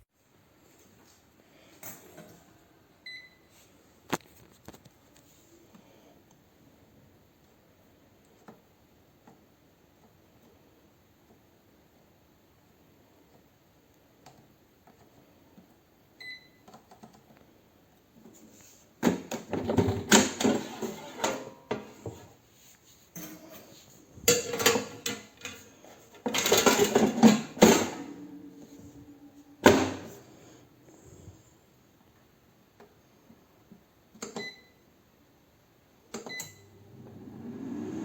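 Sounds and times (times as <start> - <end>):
electronic appliance beep: 3.0 - 3.5, 16.2 - 16.6, 34.4 - 34.8, 36.2 - 36.8
clattering and rustling handling: 18.2 - 31.3.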